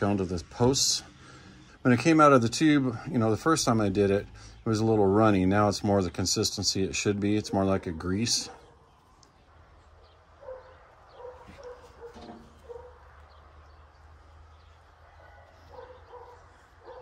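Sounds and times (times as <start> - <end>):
distant dog barking: 8.4 - 8.8, 10.0 - 13.2, 15.1 - 17.0.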